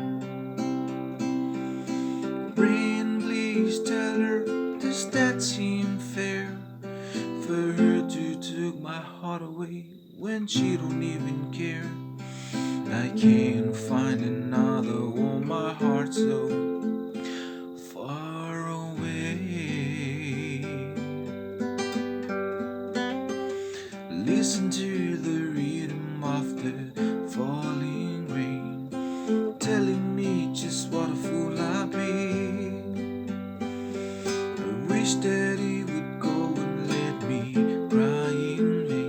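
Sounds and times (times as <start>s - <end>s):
acoustic guitar strumming: 0.0s - 39.0s
wavering gliding melody: 12.8s - 17.2s.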